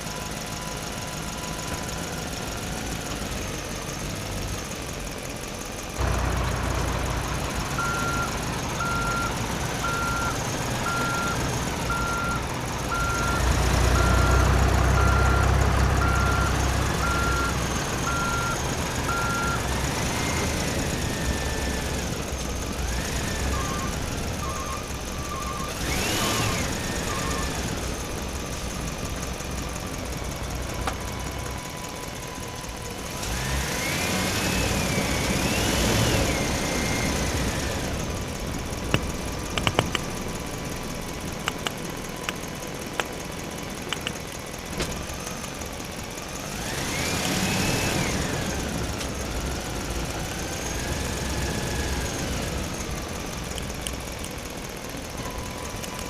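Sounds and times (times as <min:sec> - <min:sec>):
heavy vehicle engine whining: 0:00.0 - 0:56.0
sharp clicks: 0:38.9 - 0:40.2, 0:41.3 - 0:45.0, 0:53.4 - 0:54.4, 0:55.7 - 0:56.0.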